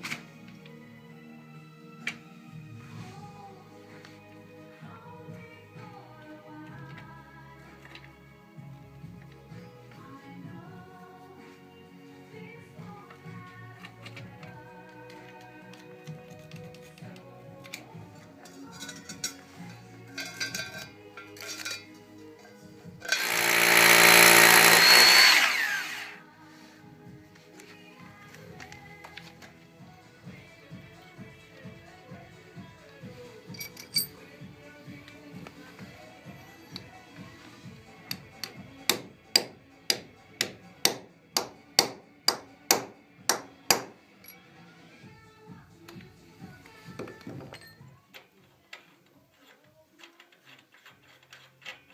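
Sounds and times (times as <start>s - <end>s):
quiet background music: 0.0s - 51.9s
electric drill running: 23.0s - 26.2s.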